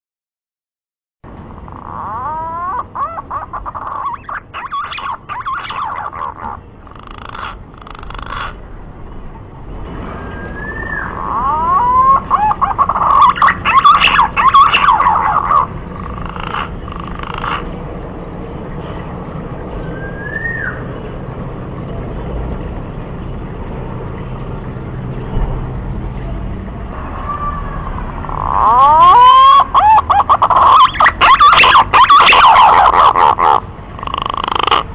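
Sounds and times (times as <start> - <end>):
rushing rumbling background: 1.3 - 34.9
pigeon whistled call: 10.1 - 15.7, 19.8 - 20.9, 27.3 - 33.4.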